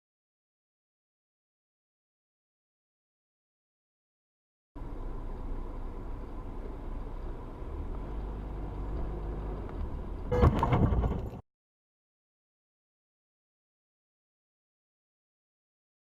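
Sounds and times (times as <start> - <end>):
car engine and road rumble: 4.8 - 11.4.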